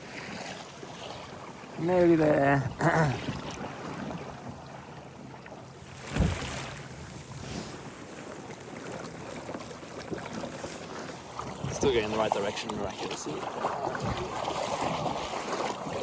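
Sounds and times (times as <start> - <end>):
water washing around kayak: 0.0 - 16.0
low thump: 6.0 - 6.8
wind on microphone: 6.0 - 8.1.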